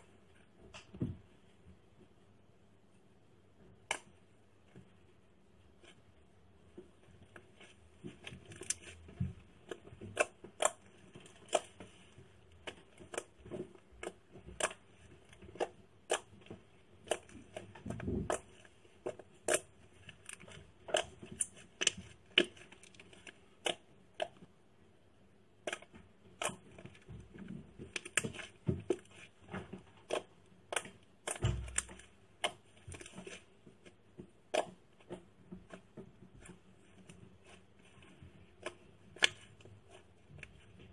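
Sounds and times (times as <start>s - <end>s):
slime clicking and popping: 14.0s - 16.4s.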